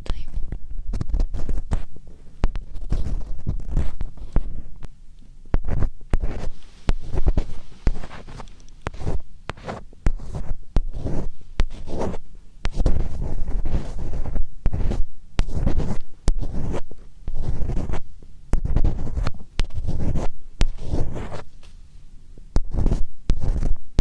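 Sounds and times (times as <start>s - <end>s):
fingernails scratching microphone: 0.0s - 4.9s, 5.5s - 21.7s, 22.6s - 24.0s
microphone handling thuds: 0.3s - 4.9s, 5.5s - 18.0s.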